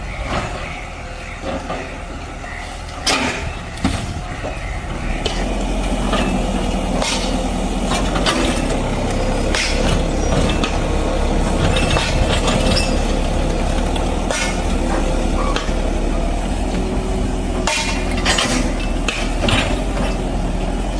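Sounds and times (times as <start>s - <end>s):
heavy diesel machinery running: 0.0s - 20.9s
metallic knocks and clanks: 3.0s - 4.6s, 11.5s - 13.2s, 17.6s - 20.2s.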